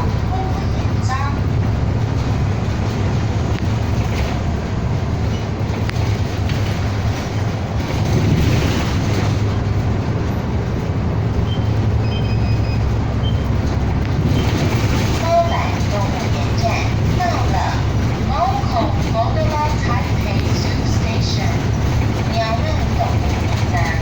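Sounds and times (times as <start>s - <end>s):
bus body rattling: 0.0s - 24.0s
bus engine and road rumble: 0.0s - 24.0s.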